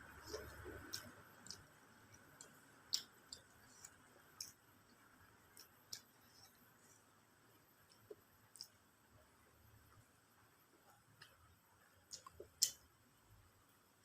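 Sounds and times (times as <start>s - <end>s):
mouth clicks and lip smacks chewing: 0.1s - 7.0s, 7.8s - 8.8s, 12.1s - 12.9s.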